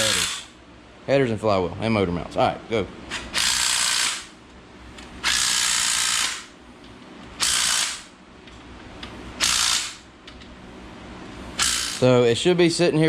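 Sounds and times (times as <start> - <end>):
power ratchet running bolts: 0.0 - 0.5, 7.4 - 8.1, 9.4 - 10.0, 11.6 - 12.0.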